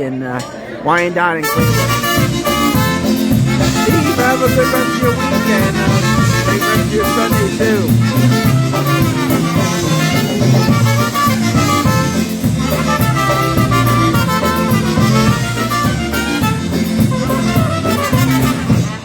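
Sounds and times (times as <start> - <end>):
polka band playing: 0.9 - 19.0.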